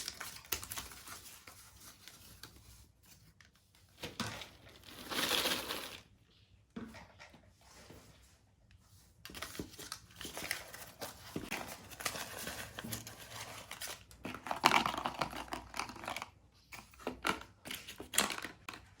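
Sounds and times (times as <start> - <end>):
plastic snack packets crinkling: 0.0 - 2.1, 4.1 - 6.1, 9.3 - 19.0.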